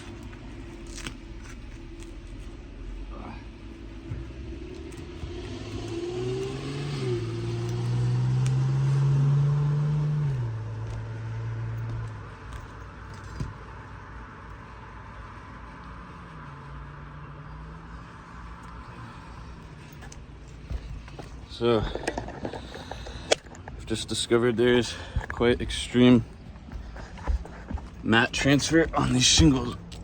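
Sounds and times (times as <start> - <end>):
vehicle engine humming: 0.0 - 30.0.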